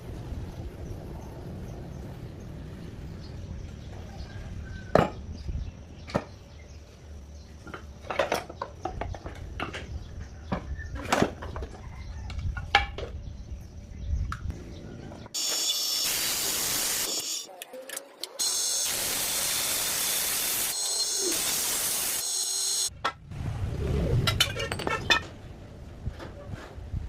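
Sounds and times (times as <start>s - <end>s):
loud steady hiss: 15.4s - 17.5s, 18.4s - 22.9s
metal parts and tools clinking: 17.1s - 18.9s
low rumble: 23.0s - 26.2s.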